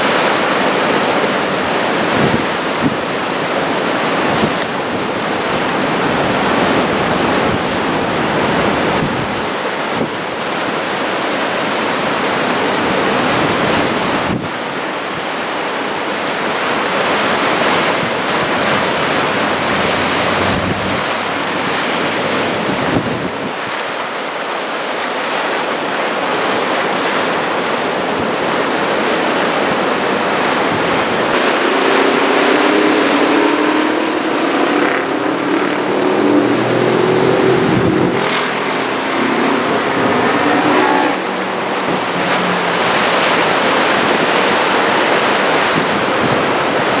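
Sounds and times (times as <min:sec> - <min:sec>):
waves breaking: 0:00.0 - 0:47.0
wind buffeting microphone: 0:00.4 - 0:10.9, 0:16.8 - 0:23.9, 0:27.9 - 0:47.0
vehicle engine: 0:17.1 - 0:23.4, 0:30.0 - 0:47.0.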